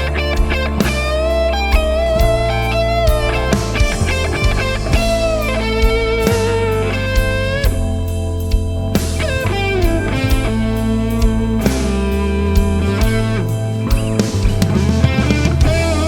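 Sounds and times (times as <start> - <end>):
bass guitar: 0.0 - 16.0
drum kit: 0.0 - 16.0.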